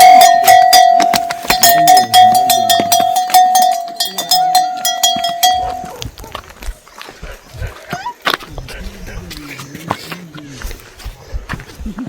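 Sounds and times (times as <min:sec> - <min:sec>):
small metal bell clanking: 0:00.0 - 0:06.0.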